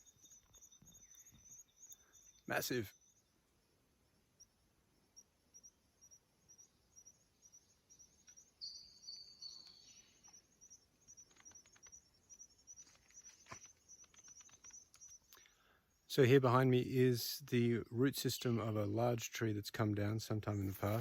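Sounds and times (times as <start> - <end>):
faint clicks: 11.0 - 12.1, 12.7 - 15.6.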